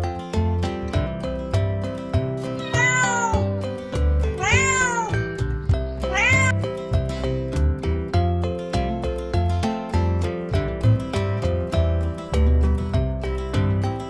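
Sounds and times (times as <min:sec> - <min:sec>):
background music with strummed guitar: 0:00.0 - 0:14.0
cat meowing: 0:02.6 - 0:03.5, 0:04.4 - 0:05.3, 0:06.1 - 0:06.6.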